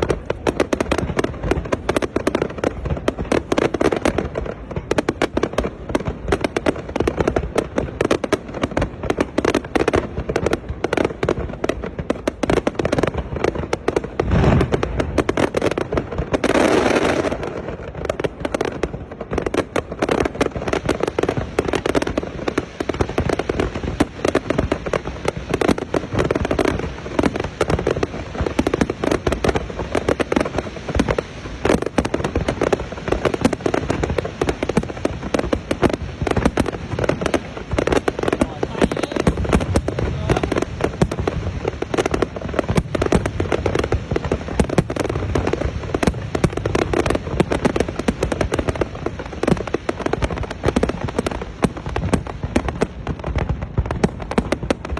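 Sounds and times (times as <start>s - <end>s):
fireworks bangs and crackles: 0.0s - 54.9s
deep firework boom: 13.2s - 17.6s, 31.0s - 47.8s.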